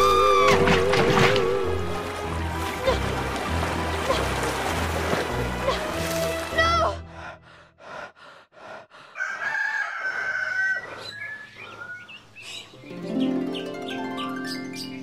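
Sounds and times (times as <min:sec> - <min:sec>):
bird crowing: 0:09.2 - 0:12.0.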